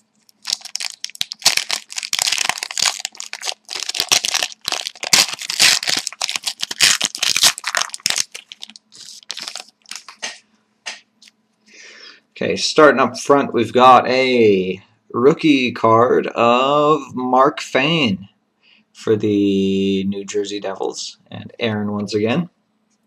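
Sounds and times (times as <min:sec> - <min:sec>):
plastic wrapper crinkling: 0:00.0 - 0:10.4.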